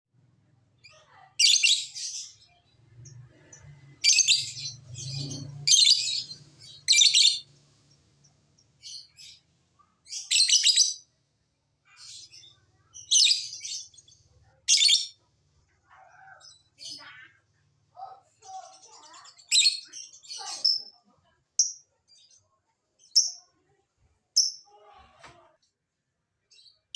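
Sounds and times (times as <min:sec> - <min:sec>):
quiet bird chirps: 0:00.8 - 0:11.2, 0:11.8 - 0:25.8
lovebirds shrill chattering calls: 0:04.0 - 0:07.5, 0:11.9 - 0:14.1.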